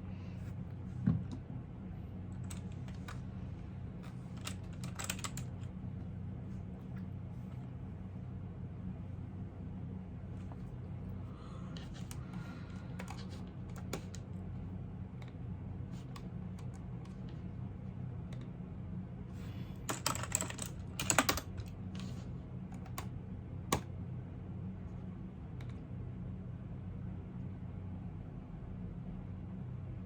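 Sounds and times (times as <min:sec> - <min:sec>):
low background hum: 0:00.0 - 0:30.0
typing on computer keyboard: 0:04.4 - 0:05.7, 0:19.9 - 0:21.7.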